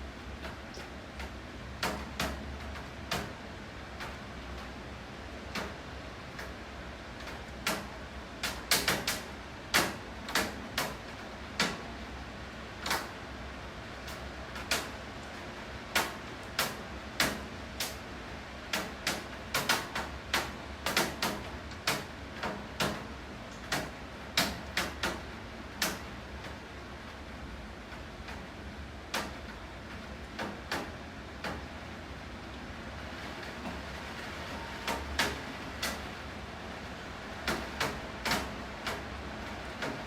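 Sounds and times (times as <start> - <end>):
steady hiss of falling rain: 0.0 - 40.0
sharp taps of raindrops: 0.4 - 3.4, 4.0 - 4.8, 5.5 - 6.6, 7.2 - 11.9, 12.8 - 13.2, 14.0 - 26.6, 27.8 - 28.5, 29.1 - 31.7, 33.3 - 34.0, 34.8 - 36.1, 37.4 - 40.0.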